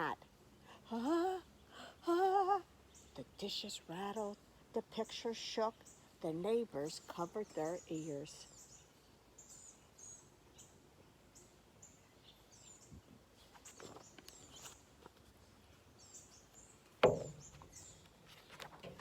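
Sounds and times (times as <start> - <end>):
small birds chirping: 0.0 - 19.0
sharp thump: 17.0 - 17.6.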